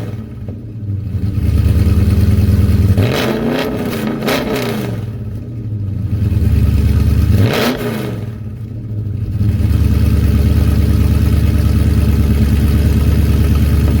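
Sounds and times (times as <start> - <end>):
car engine idling: 0.0 - 14.0
car engine revving: 0.0 - 14.0.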